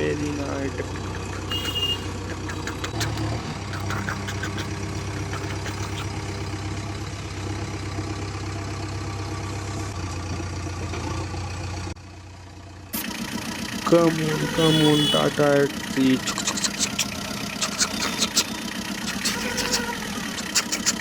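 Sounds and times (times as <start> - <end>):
heavy vehicle engine idling: 4.4 - 21.0.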